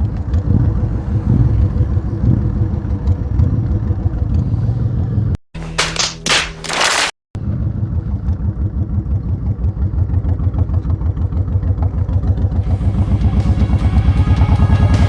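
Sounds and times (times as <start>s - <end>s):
motorcycle engine pulsing: 7.4s - 15.0s.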